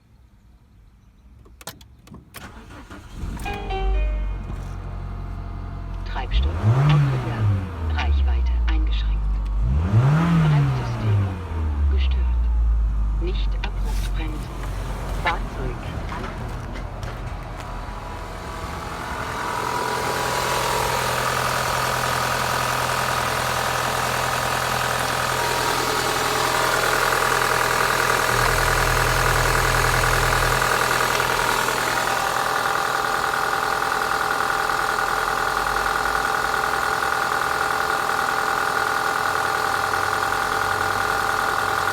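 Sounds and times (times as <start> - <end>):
petrol engine idling: 2.4 - 41.9.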